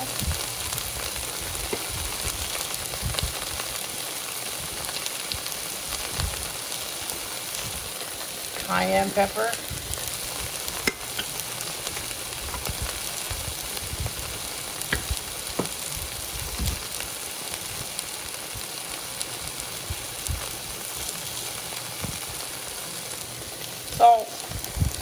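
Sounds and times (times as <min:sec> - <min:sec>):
sauce sizzling in a pot: 0:00.0 - 0:25.0.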